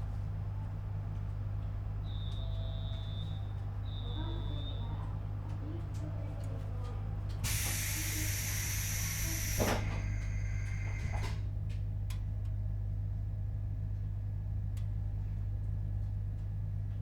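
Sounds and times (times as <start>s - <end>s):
train equipment low hum: 0.0s - 17.0s
compressed-air hiss: 7.5s - 10.9s.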